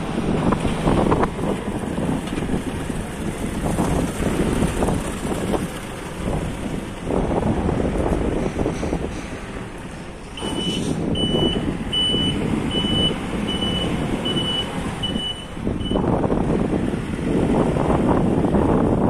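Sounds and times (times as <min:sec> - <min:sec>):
diesel engine running: 0:00.0 - 0:19.0
reversing alarm beeping: 0:10.4 - 0:16.0.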